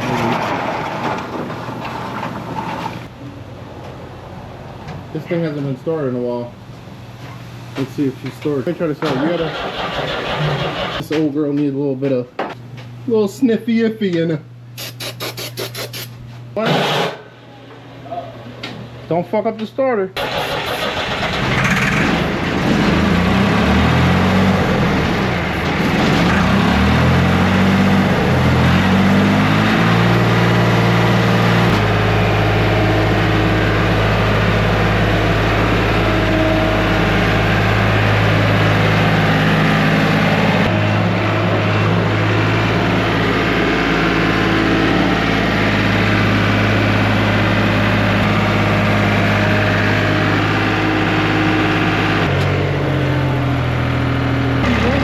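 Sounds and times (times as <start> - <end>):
skid steer engine running: 9.0 - 11.0, 20.2 - 55.0.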